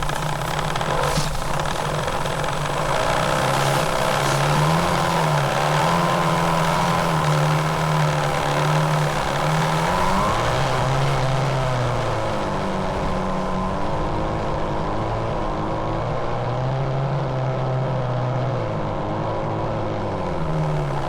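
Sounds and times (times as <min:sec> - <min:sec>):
toy motor whining: 0:00.0 - 0:12.3.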